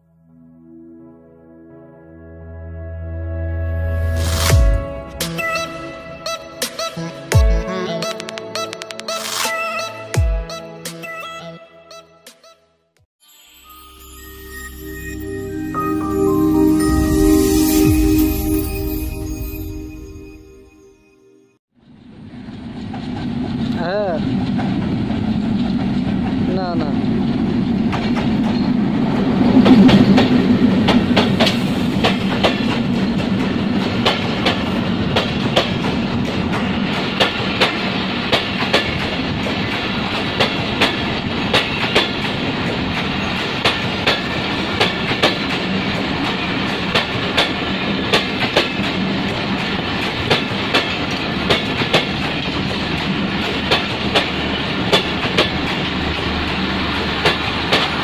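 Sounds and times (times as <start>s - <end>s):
diesel locomotive engine passing: 21.8s - 58.0s
train coaches rumbling: 22.0s - 58.0s
wheels clickety-clack over rail joints: 22.2s - 58.0s.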